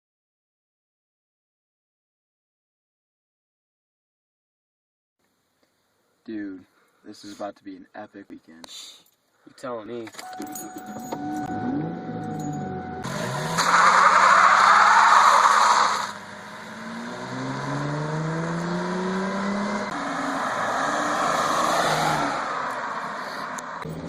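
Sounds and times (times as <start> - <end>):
car engine accelerating: 10.8 - 24.0.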